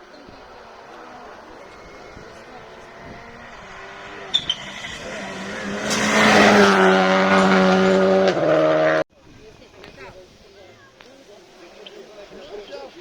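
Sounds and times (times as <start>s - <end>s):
rally car engine revving: 0.0s - 9.0s.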